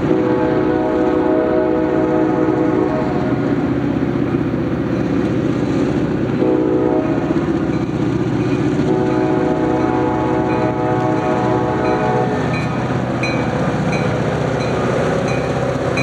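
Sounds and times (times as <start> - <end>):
locomotive air horn blasts: 0.0 - 3.5, 6.4 - 7.6, 8.7 - 13.1
passing train rumble: 0.0 - 16.0.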